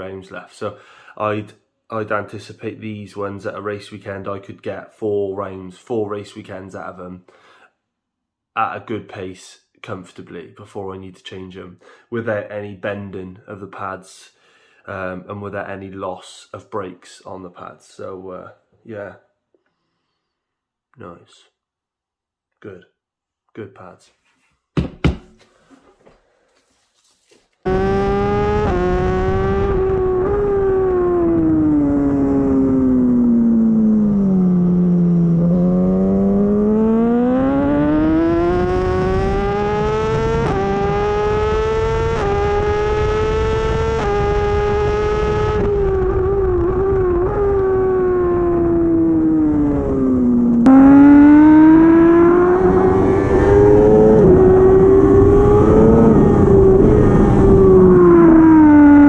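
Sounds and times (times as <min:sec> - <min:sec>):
motorcycle engine revving high: 0:27.7 - 0:59.0.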